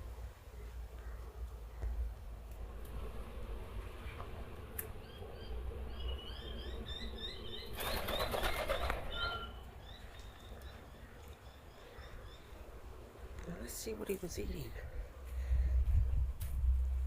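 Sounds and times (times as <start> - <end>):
birds chirping: 3.6 - 15.1
bird wings flapping: 7.7 - 9.5.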